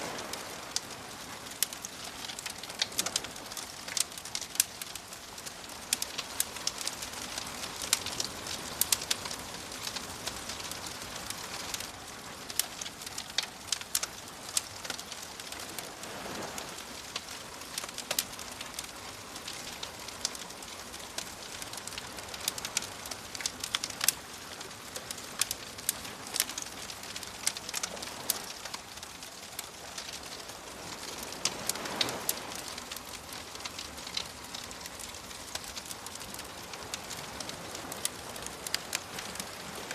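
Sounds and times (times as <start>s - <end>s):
gentle waves washing: 0.0s - 39.9s
steady hiss: 0.0s - 39.9s
wood fire crackling: 0.0s - 39.9s.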